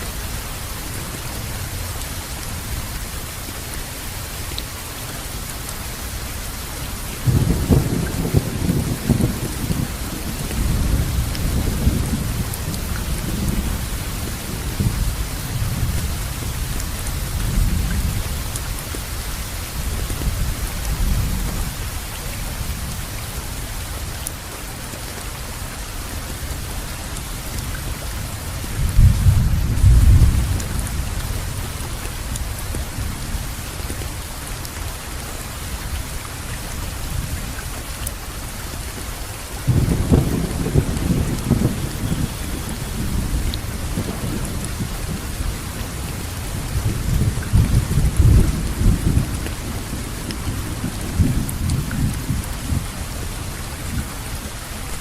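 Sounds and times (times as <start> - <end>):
steady rainfall: 0.0 - 55.0
thunder rumbling: 7.2 - 18.8, 28.6 - 31.8, 39.7 - 55.0.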